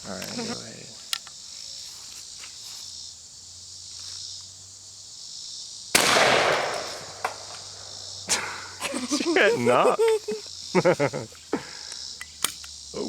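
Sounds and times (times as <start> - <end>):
insects chirring: 0.0 - 13.0
shotgun blast: 5.9 - 7.9.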